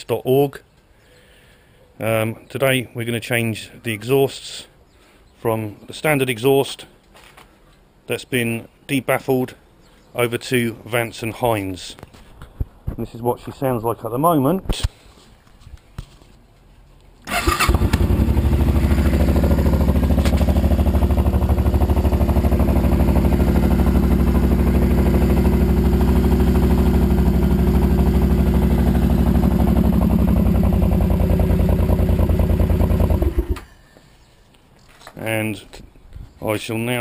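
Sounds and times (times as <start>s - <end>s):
motorcycle engine idling: 17.3s - 33.6s.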